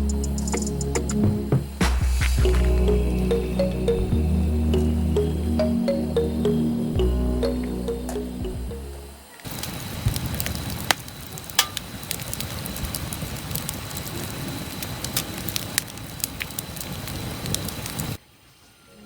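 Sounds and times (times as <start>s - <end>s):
campfire crackling and popping: 9.4s - 18.2s.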